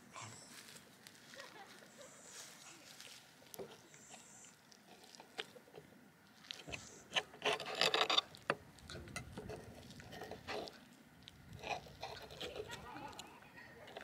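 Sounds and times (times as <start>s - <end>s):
knife scraping through food: 6.5s - 8.4s, 9.2s - 10.8s, 11.5s - 13.2s.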